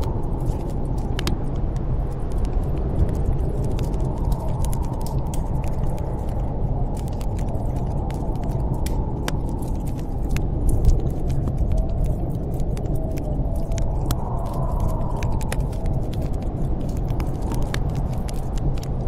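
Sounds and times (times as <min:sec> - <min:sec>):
snowstorm wind rushing: 0:00.0 - 0:19.0
wood crackling in fireplace: 0:00.0 - 0:19.0.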